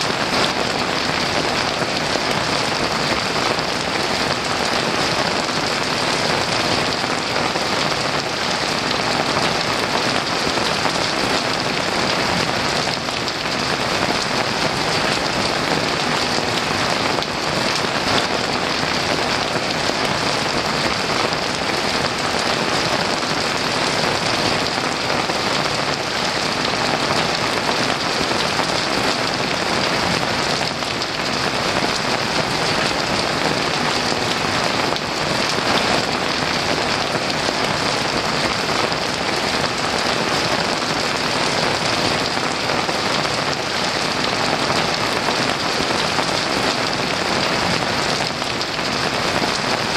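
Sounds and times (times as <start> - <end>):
heavy rain hissing: 0.0 - 49.9.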